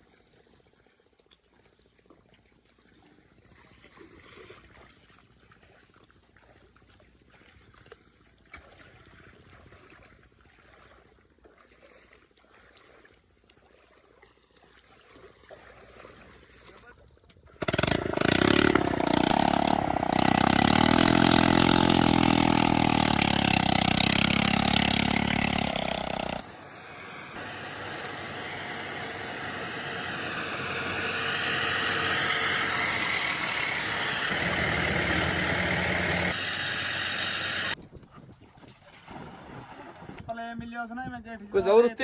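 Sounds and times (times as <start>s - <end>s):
heavy diesel engines running: 17.6s - 37.8s.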